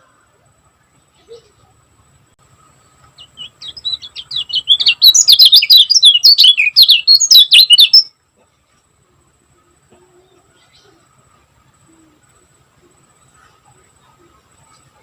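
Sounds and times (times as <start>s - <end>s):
bird singing sharp chirps: 3.1s - 8.1s.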